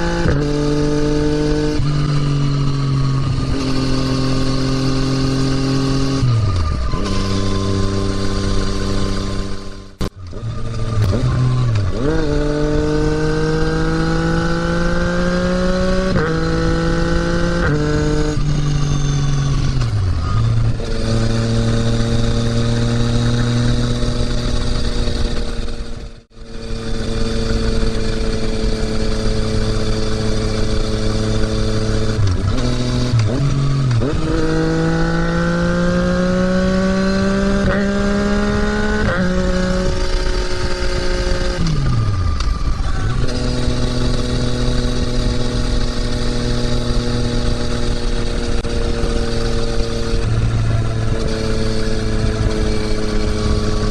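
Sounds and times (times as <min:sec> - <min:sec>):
motorcycle engine while riding: 0:00.0 - 0:53.9.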